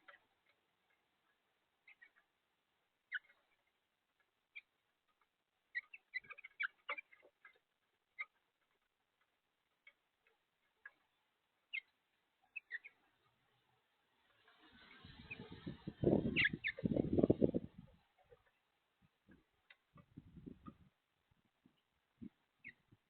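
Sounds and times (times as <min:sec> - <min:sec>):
finches chirping: 0:01.2 - 0:02.3, 0:03.0 - 0:04.8, 0:05.7 - 0:08.4, 0:09.9 - 0:19.4, 0:21.8 - 0:23.0.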